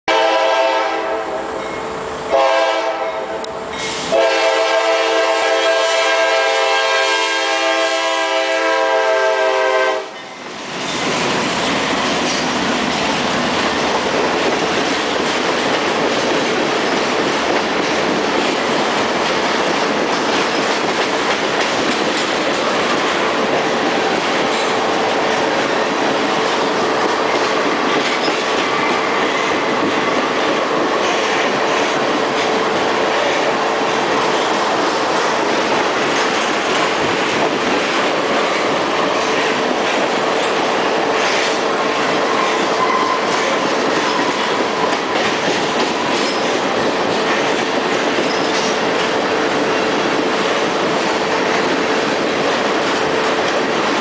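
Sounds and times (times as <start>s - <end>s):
train air horn blasts: 0.1s - 10.2s, 42.3s - 43.6s
freight train rumbling past: 0.1s - 54.0s.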